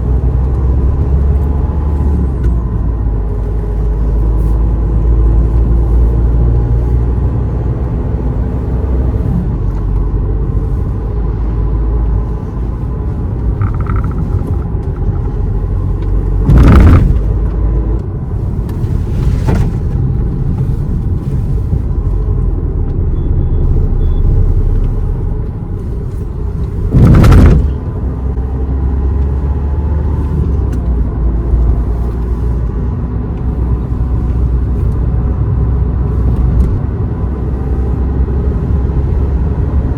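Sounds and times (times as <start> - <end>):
car engine and road rumble: 0.0 - 39.9
short loud whooshes: 26.8 - 27.9.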